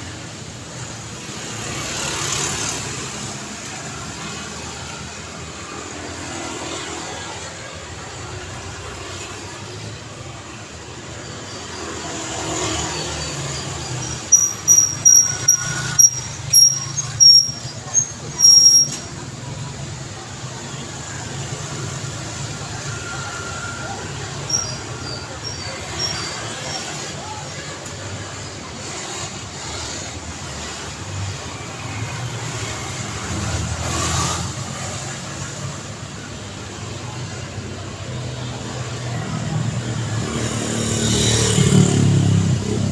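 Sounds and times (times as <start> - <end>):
road traffic: 0.0 - 42.9
high-pitched squeaks: 12.4 - 19.4, 22.8 - 27.8.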